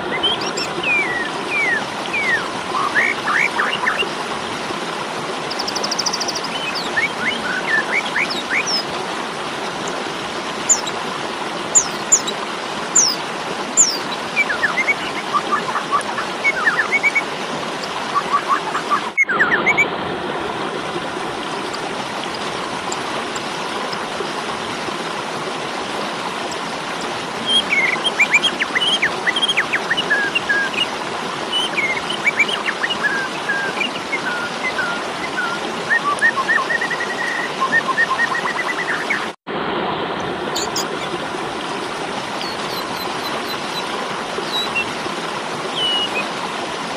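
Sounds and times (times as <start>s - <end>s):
starling chirping and whistling: 0.2s - 4.0s, 5.5s - 8.8s, 10.7s - 10.9s, 11.7s - 12.3s, 13.0s - 13.2s, 13.8s - 17.2s, 27.5s - 30.8s, 40.6s - 41.0s, 42.4s - 43.8s, 44.5s - 44.9s, 45.8s - 46.2s.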